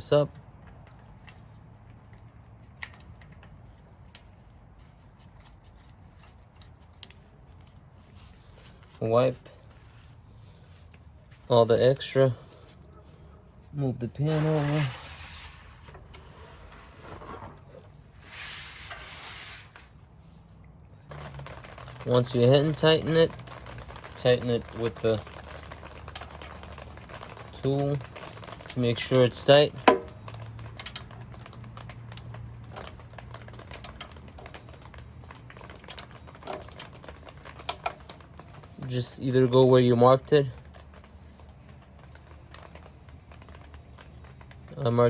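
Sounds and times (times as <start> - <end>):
drain pan scraping across ground: 14.1 - 20.0.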